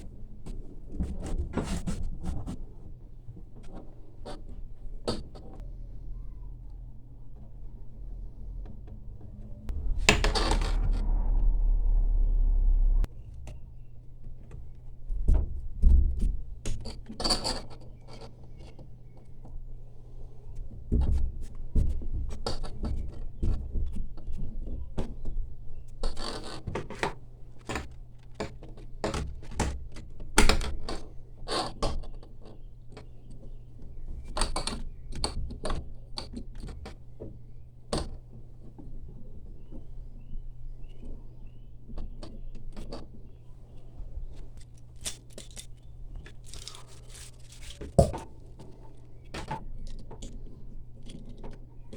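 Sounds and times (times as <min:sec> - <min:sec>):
loud low rumble: 0:05.6 - 0:13.1
faint low hum: 0:05.6 - 0:13.9
small parts and tools clinking: 0:44.6 - 0:48.1.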